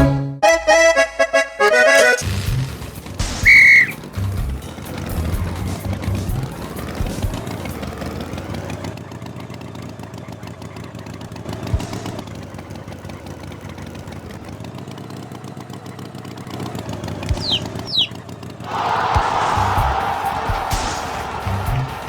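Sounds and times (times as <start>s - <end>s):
quick falling chirps: 3.3s - 4.0s, 17.3s - 18.2s
motor running: 17.2s - 18.2s.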